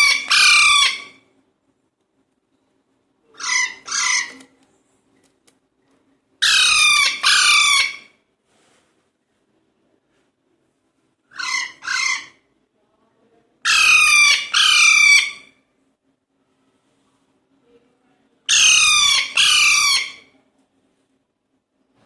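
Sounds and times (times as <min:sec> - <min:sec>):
parakeets squawking: 0:00.0 - 0:01.2, 0:03.4 - 0:04.4, 0:06.4 - 0:08.0, 0:11.3 - 0:12.4, 0:13.7 - 0:15.5, 0:18.5 - 0:20.2.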